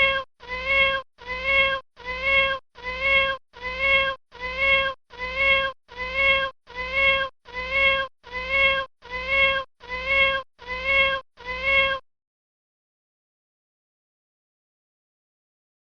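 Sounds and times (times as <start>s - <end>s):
kitten meowing: 0.0s - 12.0s.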